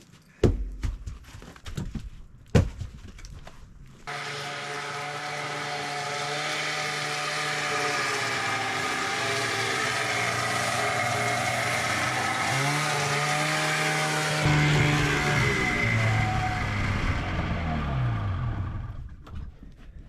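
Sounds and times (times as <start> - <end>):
two-stroke engine running: 4.1 - 19.1.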